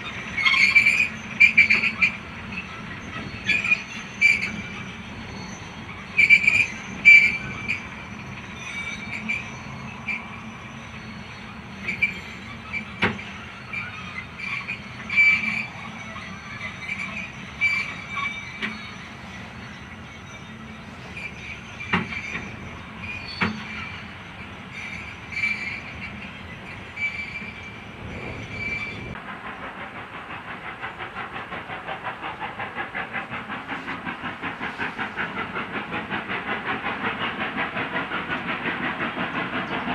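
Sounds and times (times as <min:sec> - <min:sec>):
wheel flanges squealing: 0:00.0 - 0:29.2
train wheels rolling slowly: 0:00.0 - 0:39.9.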